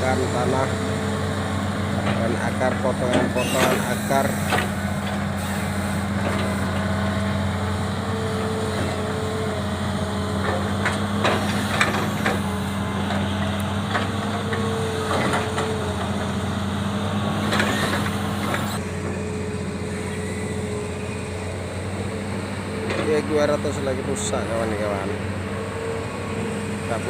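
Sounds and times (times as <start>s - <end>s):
excavator diesel engine: 0.0s - 27.0s.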